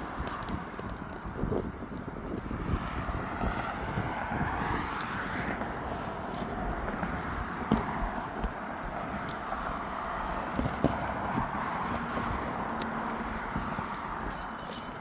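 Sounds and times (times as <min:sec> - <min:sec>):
light clicks and scrapes: 0:00.0 - 0:15.0
aircraft flying over: 0:00.8 - 0:10.6.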